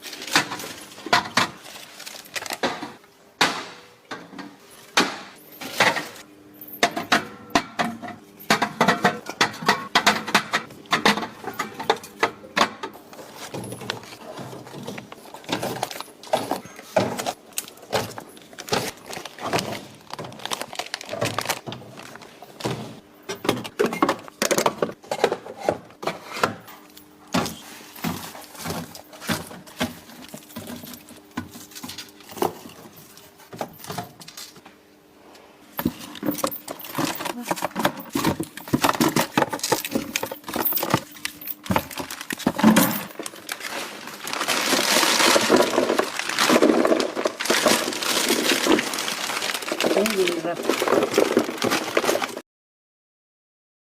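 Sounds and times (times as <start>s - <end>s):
groceries knocking and clinking: 0.0s - 34.7s, 35.8s - 52.4s.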